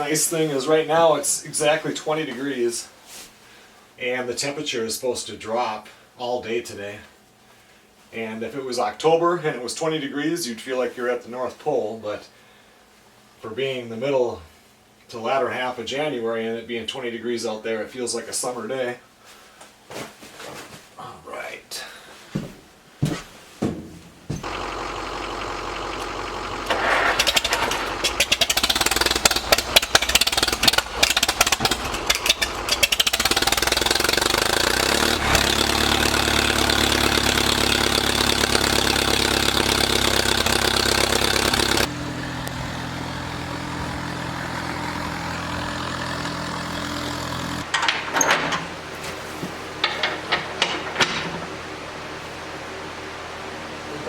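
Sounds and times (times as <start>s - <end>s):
tractor engine running: 24.2s - 48.9s
metal clanks and rattles: 26.7s - 34.1s, 47.6s - 51.7s.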